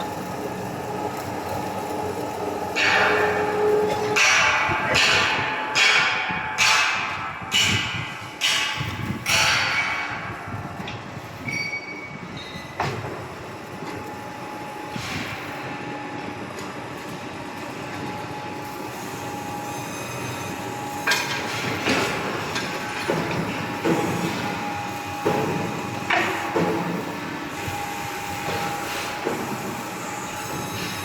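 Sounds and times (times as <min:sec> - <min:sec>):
hydraulic whine and drone: 0:00.0 - 0:31.0
metallic clanks and knocks: 0:02.8 - 0:13.2.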